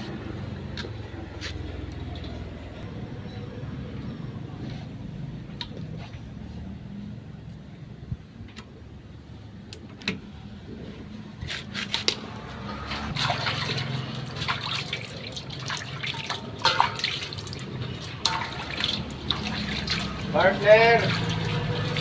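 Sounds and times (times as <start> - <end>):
liquid trickling: 12.8 - 22.0.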